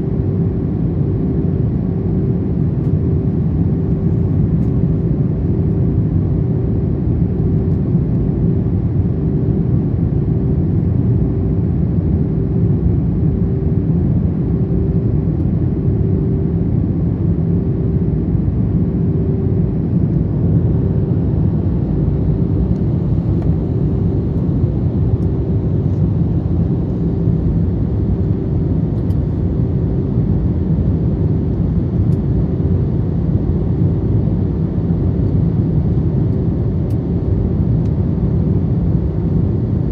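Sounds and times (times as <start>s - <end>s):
aircraft cabin engine rumble: 0.0s - 39.9s
steady hum: 13.2s - 39.9s.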